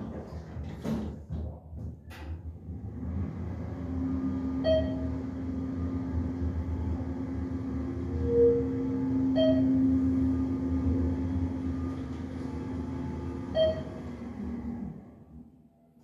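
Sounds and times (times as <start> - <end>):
elevator machine drone and hum: 2.6 - 15.4
elevator dings: 4.6 - 5.2, 8.2 - 11.0, 13.5 - 14.0.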